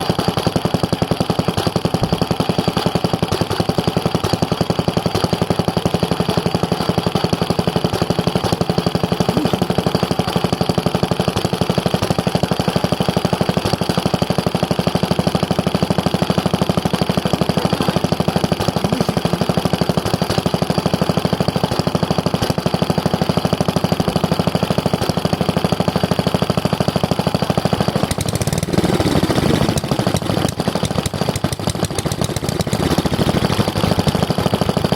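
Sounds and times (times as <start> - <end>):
small stationary engine running: 0.0 - 34.9.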